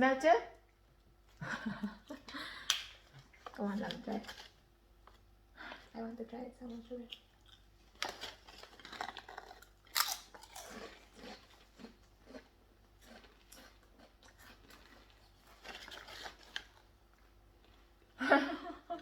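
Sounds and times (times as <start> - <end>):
person chewing crunchy chips: 6.7 - 18.1.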